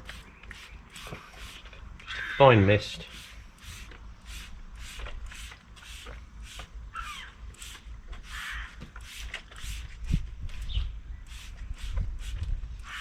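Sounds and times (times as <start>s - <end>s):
trigger sprayer hissing: 0.0s - 1.7s, 2.9s - 6.7s, 7.5s - 9.9s.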